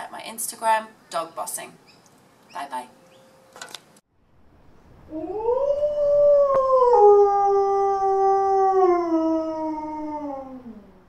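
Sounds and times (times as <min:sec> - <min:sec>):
dog howling: 0:05.1 - 0:11.0.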